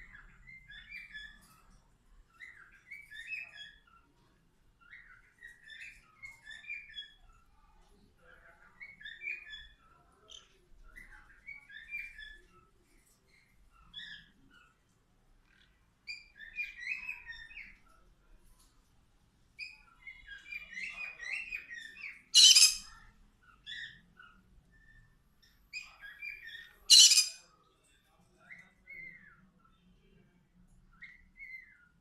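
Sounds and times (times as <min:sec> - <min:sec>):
parrots chirping and chattering: 0:00.0 - 0:18.0, 0:19.6 - 0:27.6, 0:30.9 - 0:32.0
parrot harsh squawks: 0:22.4 - 0:22.9, 0:26.9 - 0:27.4.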